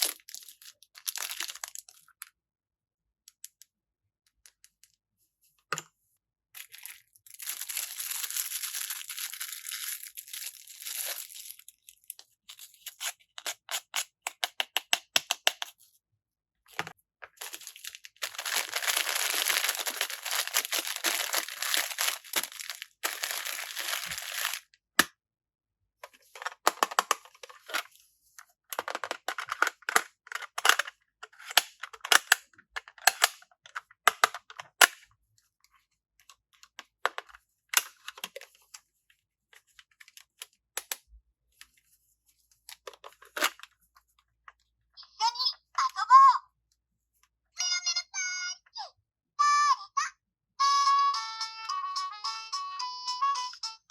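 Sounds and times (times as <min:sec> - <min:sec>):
packaging tearing and crinkling: 0:00.0 - 0:01.9, 0:06.7 - 0:12.0, 0:17.4 - 0:24.7.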